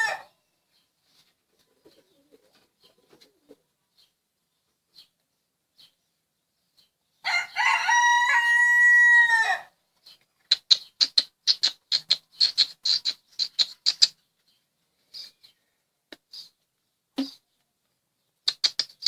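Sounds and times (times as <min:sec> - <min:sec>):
rooster crowing: 0:00.0 - 0:00.3, 0:07.2 - 0:09.8.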